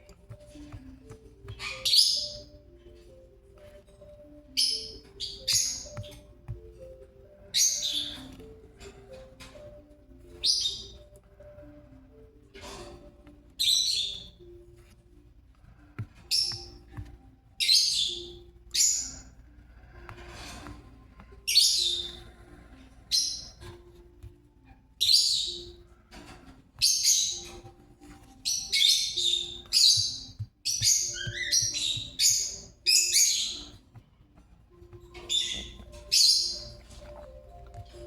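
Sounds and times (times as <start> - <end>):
parrot high-pitched chirping: 1.4 - 3.1, 3.9 - 6.4, 7.3 - 9.5, 10.2 - 11.2, 13.6 - 14.6, 16.2 - 16.9, 17.6 - 19.4, 21.5 - 22.2, 25.0 - 33.8, 35.0 - 37.3.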